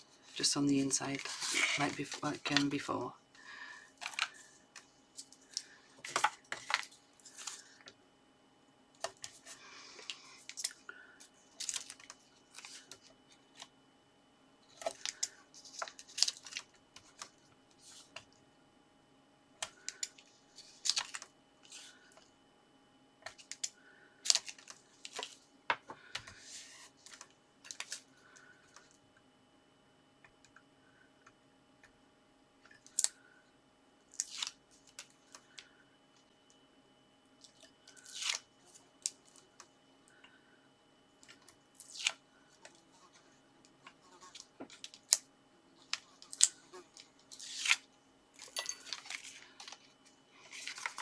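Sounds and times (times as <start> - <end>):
paper rustling: 0.2 - 2.7, 48.8 - 51.0.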